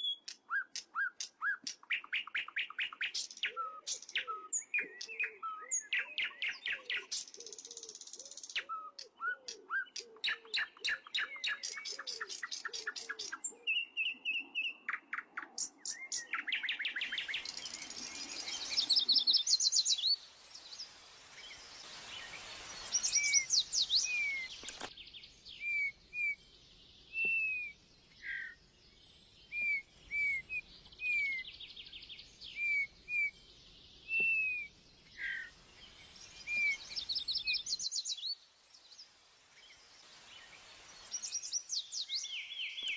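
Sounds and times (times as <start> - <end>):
birds chirping and trilling: 0.0 - 42.9.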